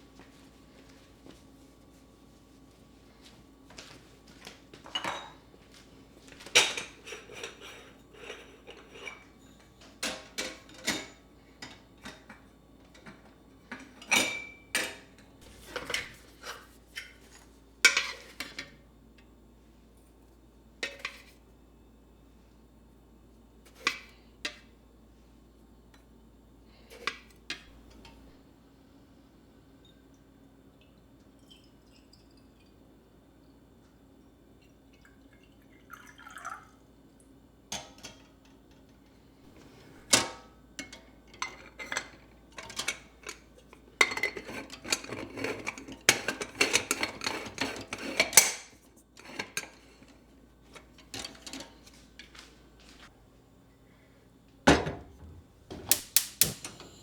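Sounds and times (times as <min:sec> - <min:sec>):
dishes and cutlery clinking: 0:04.8 - 0:05.5, 0:06.4 - 0:17.3, 0:39.6 - 0:49.8.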